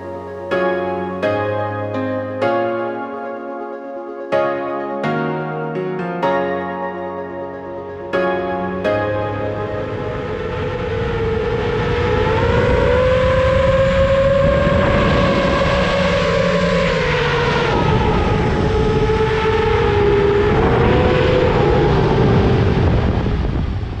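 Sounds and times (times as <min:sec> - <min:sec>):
wind noise: 0:09.4 - 0:24.0.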